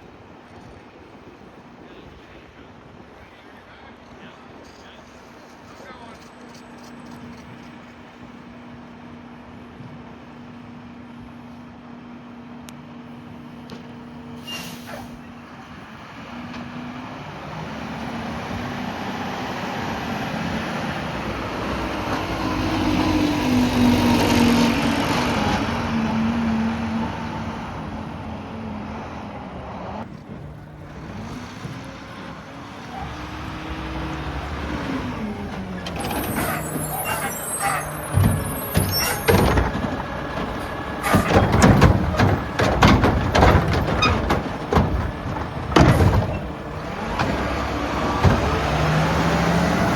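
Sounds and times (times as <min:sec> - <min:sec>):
garbage truck diesel engine revving: 0:15.7 - 0:49.9
loud clattering bangs: 0:35.4 - 0:49.4.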